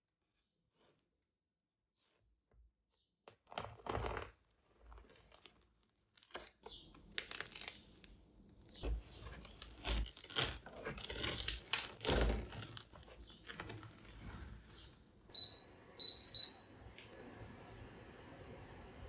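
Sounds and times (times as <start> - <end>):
rustling and handling noises: 0.4 - 15.3.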